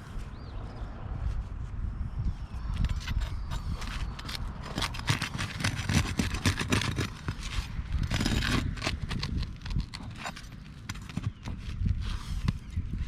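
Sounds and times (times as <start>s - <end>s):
roof shingles crackling and scraping: 3.6s - 12.5s.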